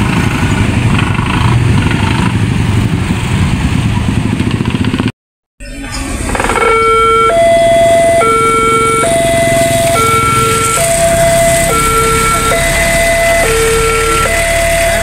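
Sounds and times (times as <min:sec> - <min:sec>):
low engine rumble: 0:00.0 - 0:15.0
level crossing two-tone alarm: 0:06.4 - 0:15.0.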